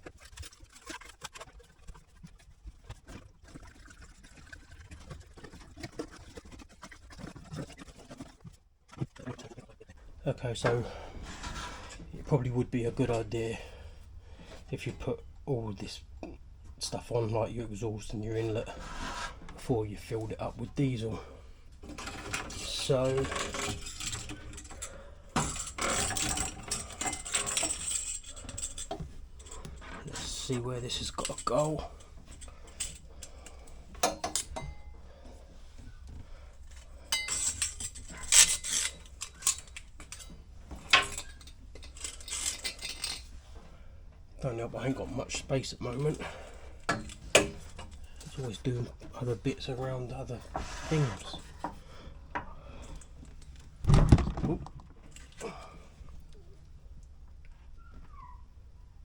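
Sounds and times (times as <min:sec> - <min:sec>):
fuel trickling into a tank: 0:00.0 - 0:12.1
parts clinking and rattling: 0:21.7 - 0:35.4, 0:36.0 - 0:43.7, 0:45.9 - 0:55.5.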